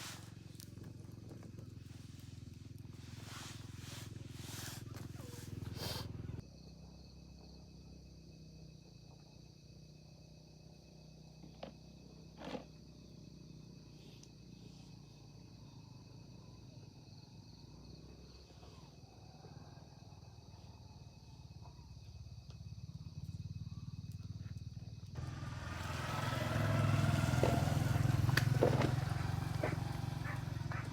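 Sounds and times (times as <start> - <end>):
vehicle engine running: 0.0 - 6.4, 22.9 - 30.9.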